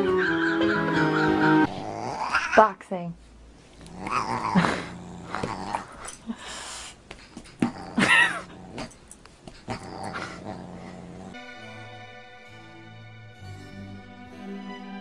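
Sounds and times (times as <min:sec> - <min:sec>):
dog growling and yipping: 0:01.6 - 0:02.7, 0:03.6 - 0:06.4, 0:07.4 - 0:11.4.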